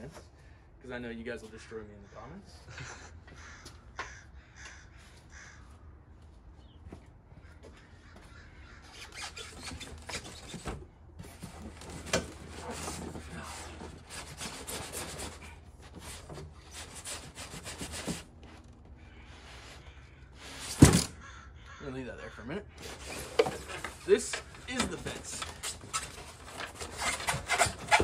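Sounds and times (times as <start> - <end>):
packaging scraping and rustling: 9.1 - 18.4, 22.8 - 28.0.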